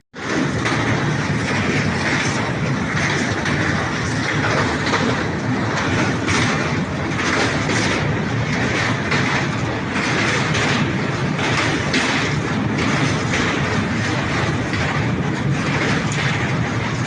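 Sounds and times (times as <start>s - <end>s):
rhythmic wheel clatter: 0.2s - 17.0s
train rumbling on rails: 0.2s - 17.0s.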